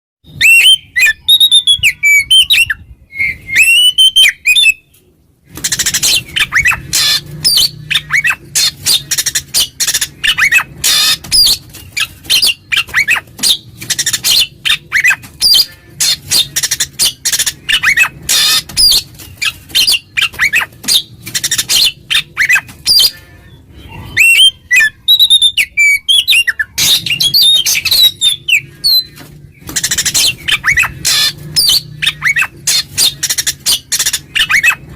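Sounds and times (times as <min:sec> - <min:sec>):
bird singing loud whistled song: 0:00.2 - 0:04.9, 0:05.6 - 0:23.2, 0:23.8 - 0:34.9.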